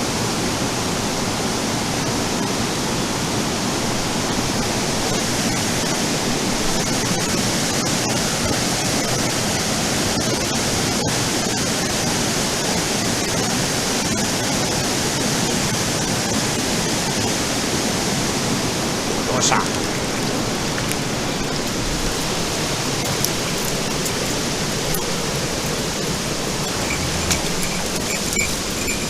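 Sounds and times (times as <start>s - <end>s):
stream water rushing: 0.1s - 29.0s.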